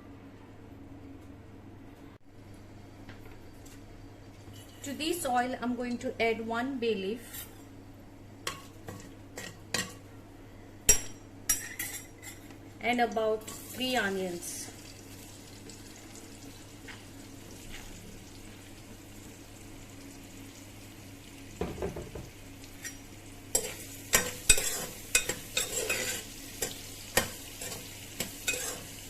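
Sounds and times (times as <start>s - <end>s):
onions sizzling in oil: 13.4s - 29.0s
utensil scraping metal pot: 23.6s - 26.3s, 27.6s - 29.0s.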